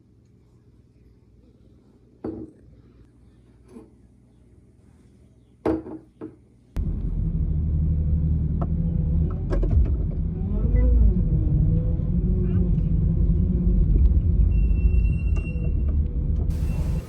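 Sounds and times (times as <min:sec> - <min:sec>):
car engine and road rumble: 0:06.8 - 0:17.0.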